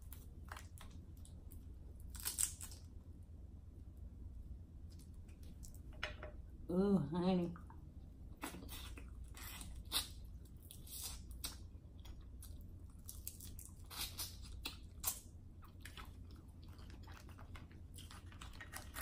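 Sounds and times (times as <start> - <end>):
chewing with wet mouth smacks: 8.4 - 19.0.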